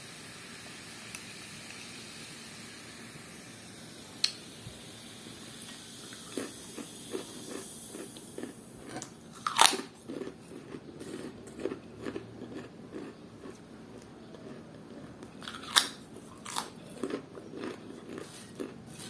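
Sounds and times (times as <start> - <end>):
chewing crunchy fried food: 5.8 - 19.0
loud crunching bite: 6.2 - 19.0.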